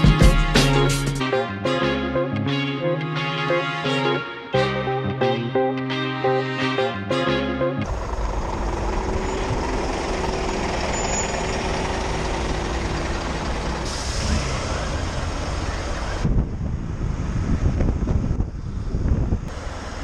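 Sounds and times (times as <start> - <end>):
motorcycle engine hum: 7.8 - 13.9
traffic: 7.8 - 20.0.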